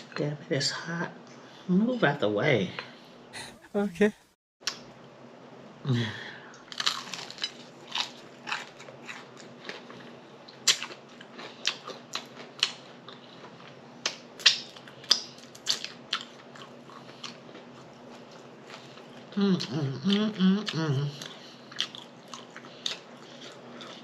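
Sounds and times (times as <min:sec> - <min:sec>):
crunchy food crackling: 0:06.7 - 0:19.8
wet chewing: 0:06.8 - 0:24.0.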